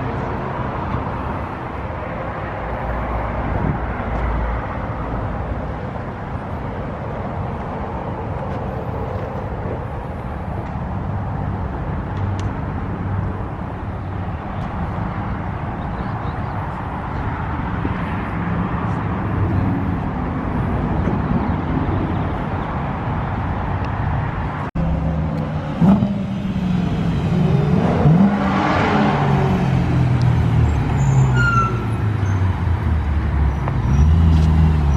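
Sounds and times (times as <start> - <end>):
road noise: 0.0 - 34.9
car engine revving: 24.8 - 31.1.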